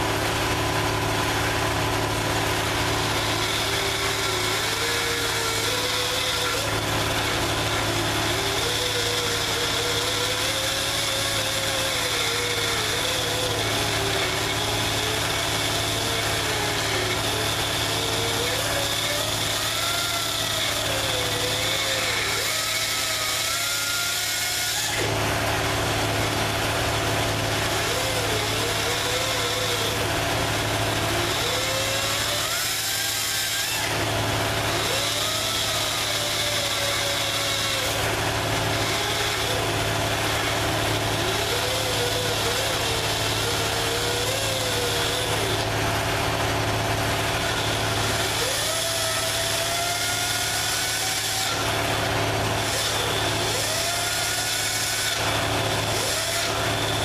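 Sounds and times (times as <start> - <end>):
electric grinder grinding metal: 0.0 - 57.0.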